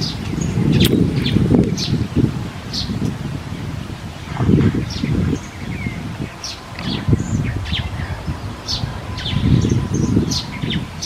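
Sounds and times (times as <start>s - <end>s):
high bird chirps: 0.0s - 2.0s, 4.4s - 11.0s
low rustling rumble: 0.0s - 11.0s.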